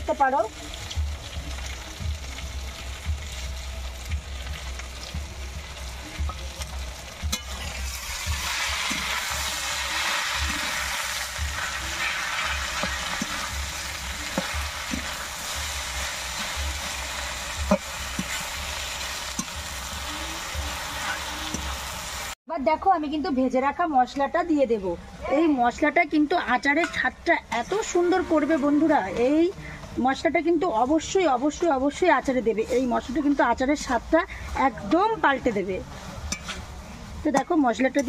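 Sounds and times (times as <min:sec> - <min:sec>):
slices frying in oil: 0:00.0 - 0:22.4.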